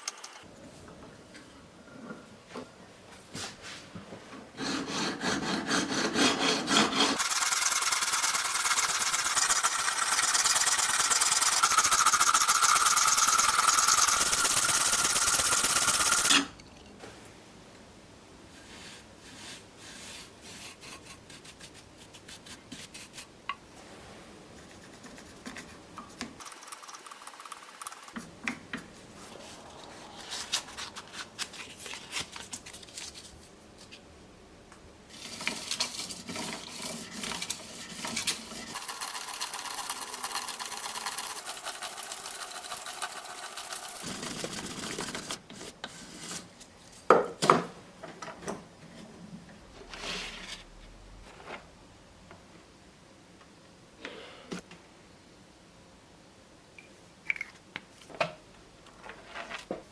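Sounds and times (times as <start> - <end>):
metal being filed and sanded: 4.6 - 16.4, 36.3 - 46.5.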